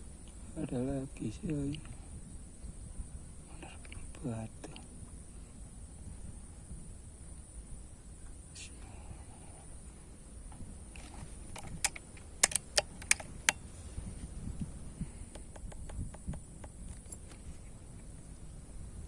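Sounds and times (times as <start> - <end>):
steady high hiss: 0.0 - 19.0
sharp clicks and taps: 11.0 - 13.6.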